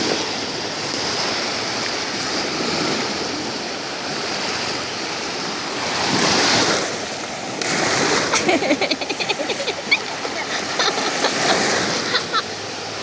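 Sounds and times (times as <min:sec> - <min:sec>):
sea surf washing: 0:00.0 - 0:13.0.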